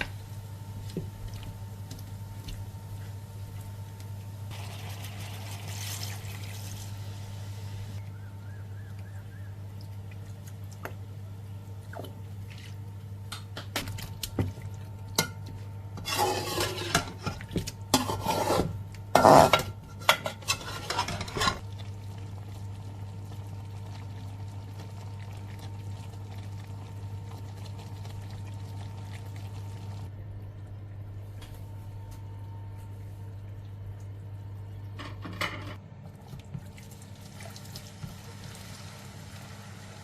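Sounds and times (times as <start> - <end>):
steady low hum: 6.3 - 36.5
utensil scraping a bowl: 16.0 - 17.3, 17.9 - 19.6.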